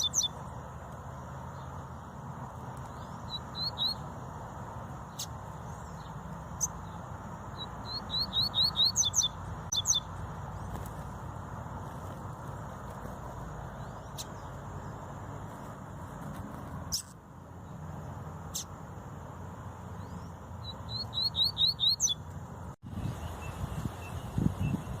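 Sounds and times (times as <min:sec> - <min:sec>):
bird chipping and calling: 0:00.0 - 0:00.5, 0:02.8 - 0:04.1, 0:05.1 - 0:11.1, 0:16.8 - 0:17.2, 0:20.0 - 0:22.4.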